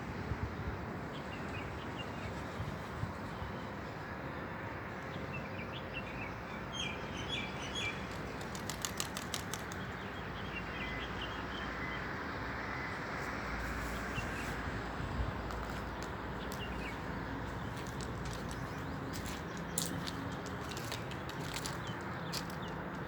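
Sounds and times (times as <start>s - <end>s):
small birds chirping: 6.8s - 12.0s, 15.4s - 23.0s.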